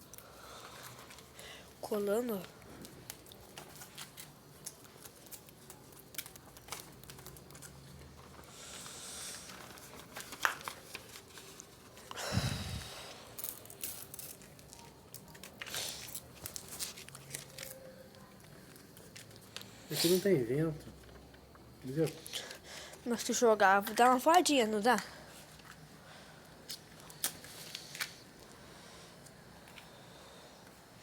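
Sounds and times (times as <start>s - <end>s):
paper crinkling and tearing: 2.8s - 8.5s, 9.3s - 12.1s, 14.3s - 19.7s.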